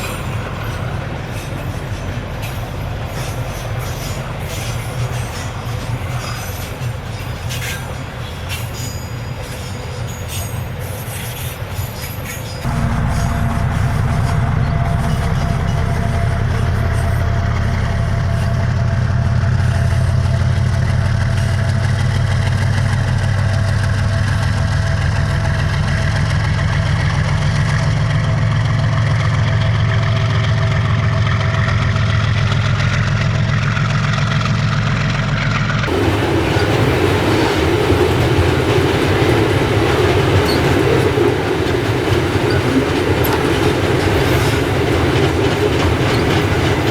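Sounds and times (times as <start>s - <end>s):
freight wagons rolling on rails: 0.0s - 34.5s, 35.5s - 46.9s
locomotive engine running: 12.6s - 46.9s.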